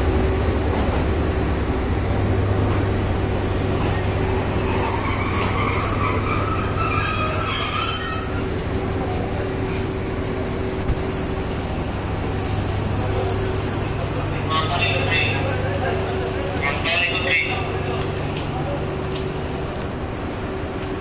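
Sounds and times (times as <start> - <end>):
low diesel rumble: 0.0 - 21.0
passenger train rolling: 0.0 - 21.0
train brakes squealing: 4.5 - 8.6.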